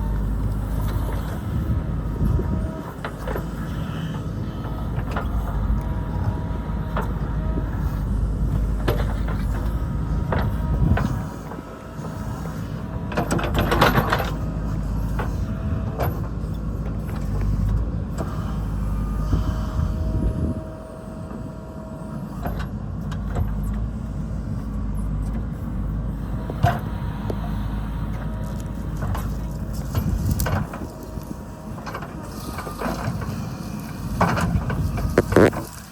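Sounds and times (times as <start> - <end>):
diesel machinery rumbling: 0.0 - 35.9
grinding scrape: 26.7 - 35.9.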